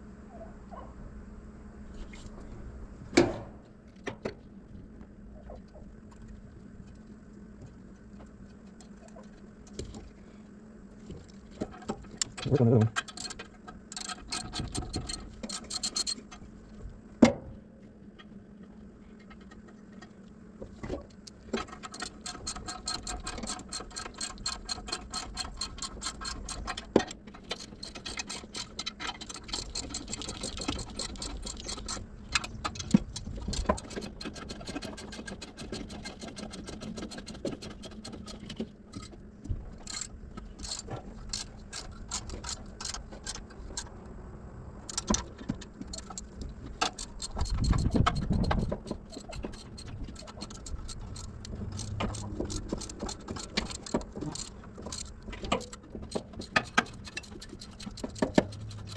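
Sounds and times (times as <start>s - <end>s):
ratchet wrench clicking: 46.0s - 55.8s.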